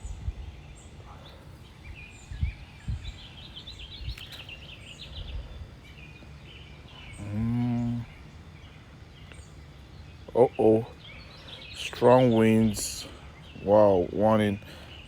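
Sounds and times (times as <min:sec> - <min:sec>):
wind buffeting microphone: 0:00.0 - 0:06.2
small birds chirping: 0:00.0 - 0:15.0.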